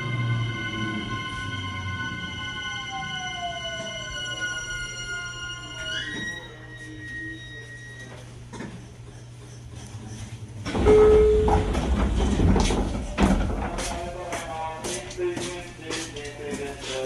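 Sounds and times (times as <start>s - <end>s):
electric train humming: 0.0s - 8.2s
sliding doors opening with air rush: 10.6s - 14.2s.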